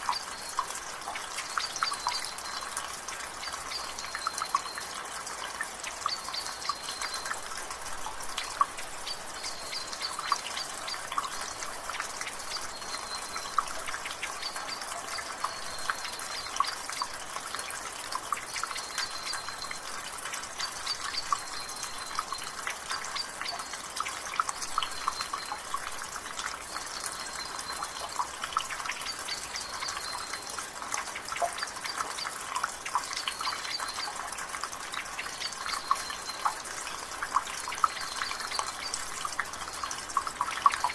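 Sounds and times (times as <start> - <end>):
water dripping from gutter: 0.0 - 40.9.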